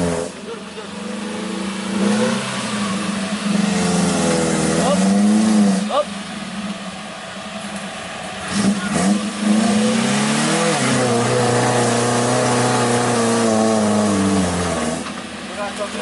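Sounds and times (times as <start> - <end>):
jeep engine revving: 0.0 - 16.0.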